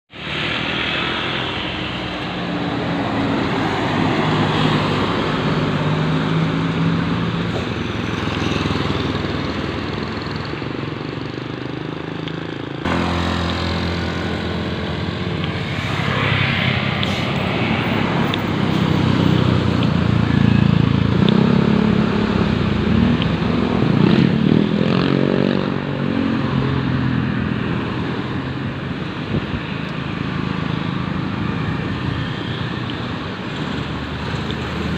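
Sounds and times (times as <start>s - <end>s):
bus engines driving past: 0.1s - 34.9s
engine revving: 12.4s - 27.2s.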